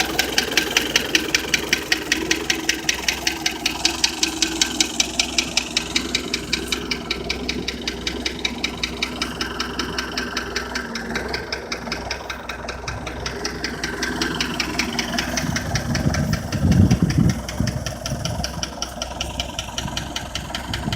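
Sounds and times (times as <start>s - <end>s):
tractor engine puttering: 0.0s - 20.9s
low rumble: 12.2s - 20.9s.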